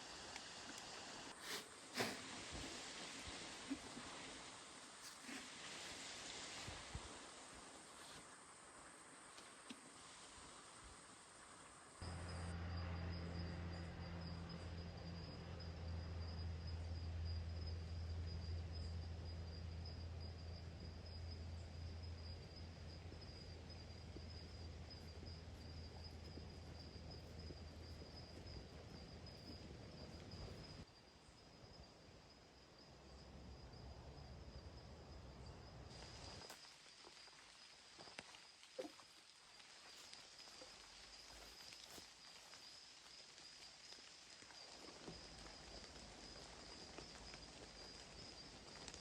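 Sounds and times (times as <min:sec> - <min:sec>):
crickets chirring: 0:00.0 - 0:49.0
soft outdoor noise: 0:00.0 - 0:49.0
low hum: 0:12.0 - 0:20.2.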